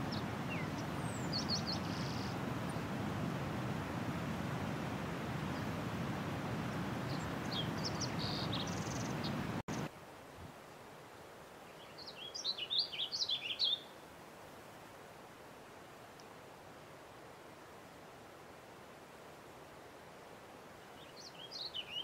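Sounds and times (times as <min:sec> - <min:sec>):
low rushing background noise: 0:00.0 - 0:22.0.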